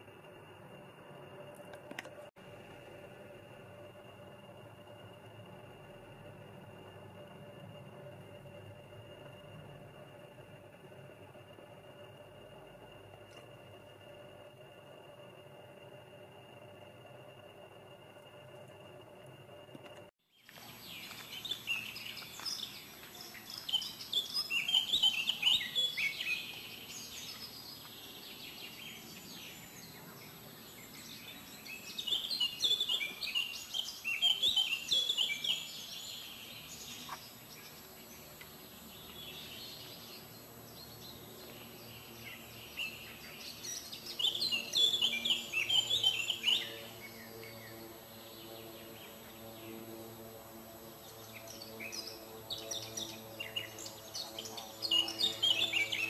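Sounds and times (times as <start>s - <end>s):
faint low hum: 0.0s - 56.0s
songbird chirping: 20.4s - 49.8s, 51.0s - 56.0s.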